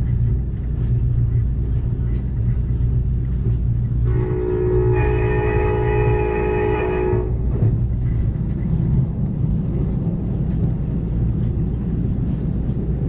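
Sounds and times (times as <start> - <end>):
train wheels rumbling on rails: 0.0 - 13.0
train horn blast: 4.0 - 7.6.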